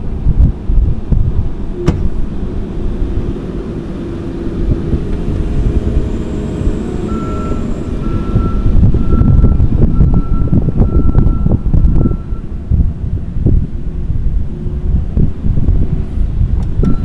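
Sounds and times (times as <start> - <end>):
diesel engine rumbling: 0.0 - 17.0
steady high tone: 1.8 - 10.8.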